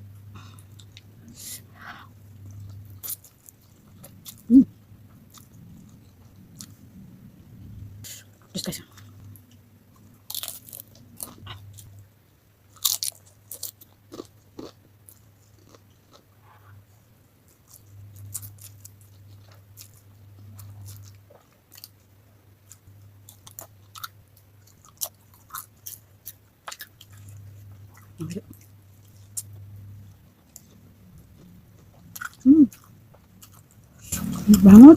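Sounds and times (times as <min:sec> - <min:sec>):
person chewing noodles: 0:12.8 - 0:16.8, 0:22.7 - 0:34.2.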